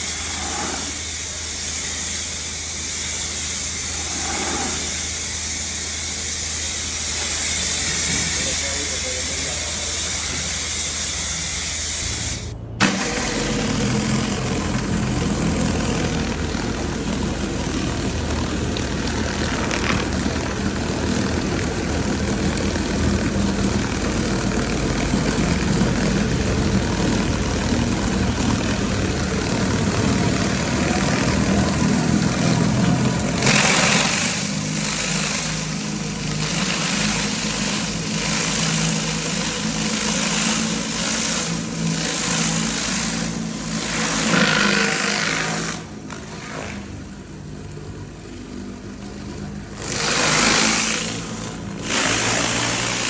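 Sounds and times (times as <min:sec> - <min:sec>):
water jet hissing on concrete: 0:00.0 - 0:47.1, 0:49.8 - 0:53.0
pressure washer engine running: 0:00.0 - 0:53.0.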